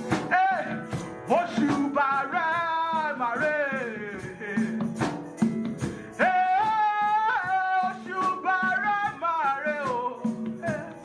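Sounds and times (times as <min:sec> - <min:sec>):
steady percussion: 0:00.0 - 0:11.0.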